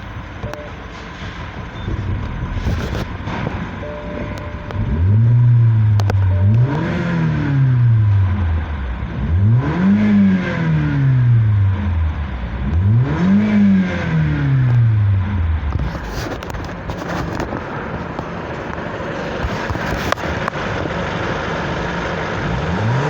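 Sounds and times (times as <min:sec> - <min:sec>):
car engine revving: 0:01.6 - 0:23.0.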